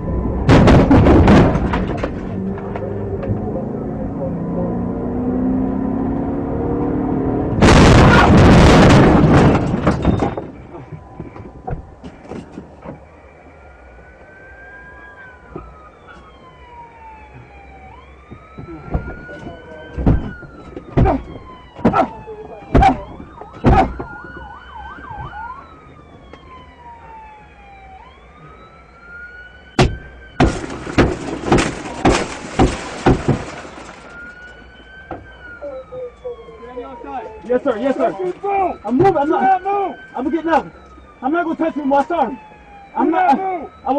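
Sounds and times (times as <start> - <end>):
police siren wailing: 0.0 - 43.9
sharp loud bangs: 0.5 - 2.0, 7.6 - 10.5, 29.8 - 34.0.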